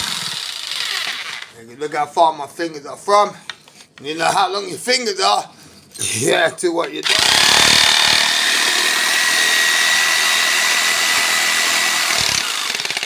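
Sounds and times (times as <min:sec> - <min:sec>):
electric jigsaw cutting wood: 0:00.0 - 0:01.5, 0:07.0 - 0:13.0.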